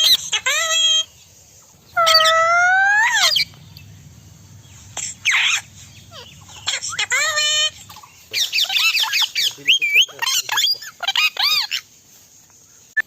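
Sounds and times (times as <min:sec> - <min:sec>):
parrot calling: 0:00.0 - 0:01.1, 0:01.8 - 0:11.9
parrot screeching: 0:00.0 - 0:01.1, 0:01.9 - 0:03.7, 0:04.6 - 0:11.8.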